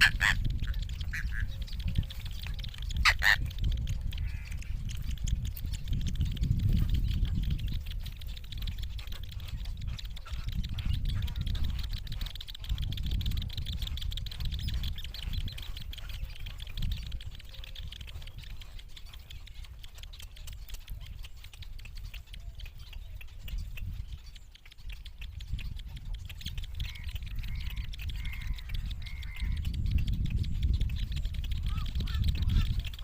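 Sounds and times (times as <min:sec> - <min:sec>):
short repeated bird calls: 0:00.0 - 0:03.5, 0:14.5 - 0:30.7
young birds chattering and squawking: 0:00.0 - 0:33.0.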